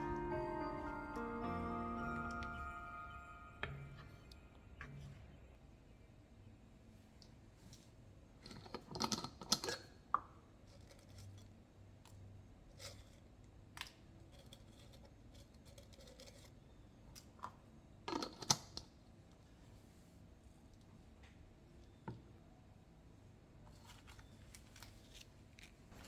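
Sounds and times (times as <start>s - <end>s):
faint handling scrapes and clicks: 10.6s - 13.3s, 14.2s - 17.3s, 23.6s - 26.0s.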